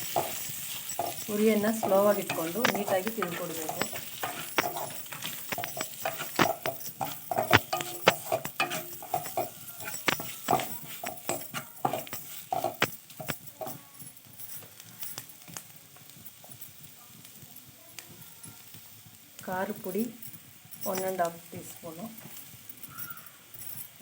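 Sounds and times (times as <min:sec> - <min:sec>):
metal spoon scraping a pan: 0:00.0 - 0:13.8
light sizzle: 0:00.0 - 0:24.0.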